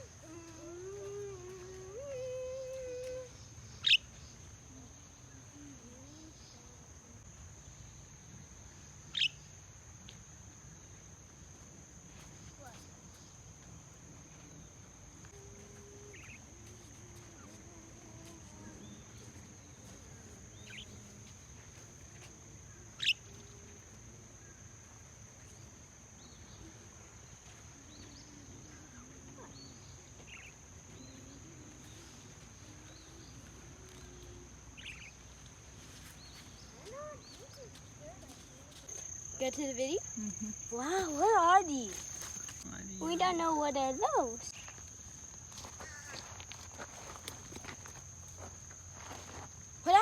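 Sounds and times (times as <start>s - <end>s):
bird chirps: 3.7s - 4.4s.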